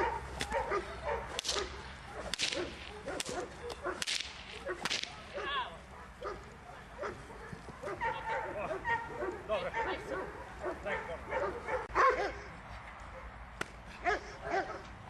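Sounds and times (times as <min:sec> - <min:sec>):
whip swishing and cracking: 0:00.0 - 0:05.7.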